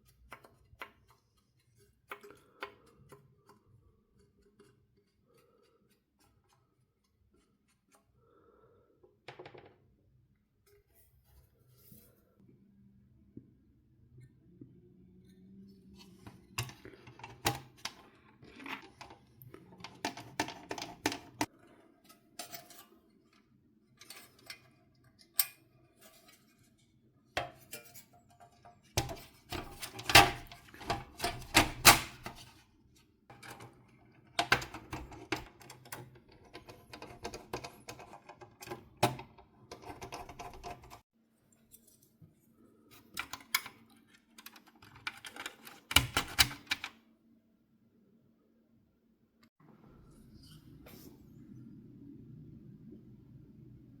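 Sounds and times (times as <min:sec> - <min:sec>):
plastic and metal parts clattering: 0:16.1 - 0:21.5, 0:27.4 - 0:32.6, 0:33.3 - 0:41.0, 0:43.0 - 0:47.0.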